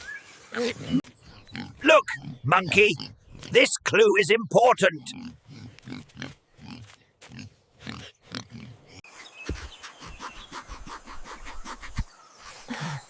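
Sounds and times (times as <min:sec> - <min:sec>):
pig grunting: 0:00.6 - 0:03.9, 0:05.0 - 0:09.0.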